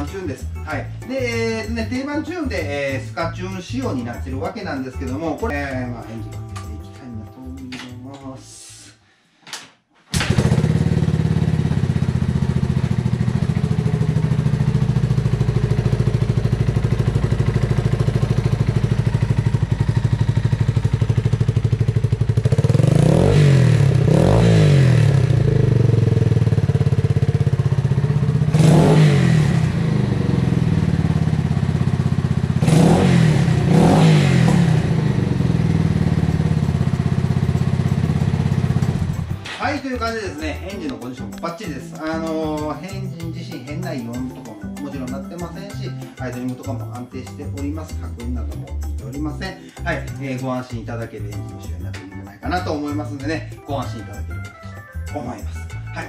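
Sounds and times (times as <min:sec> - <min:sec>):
motorcycle engine idling: 0:10.2 - 0:39.4.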